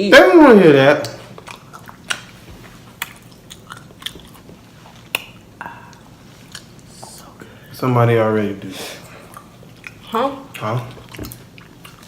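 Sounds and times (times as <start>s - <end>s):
person chewing with wet smacks: 0.9s - 7.4s, 9.2s - 12.0s.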